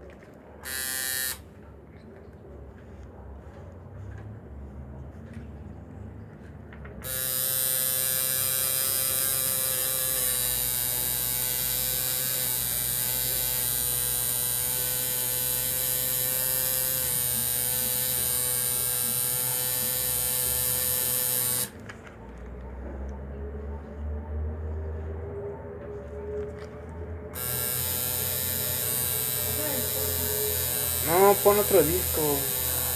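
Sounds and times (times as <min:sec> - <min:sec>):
tattoo machine buzzing: 0:00.6 - 0:01.4, 0:07.0 - 0:21.7, 0:27.4 - 0:32.9.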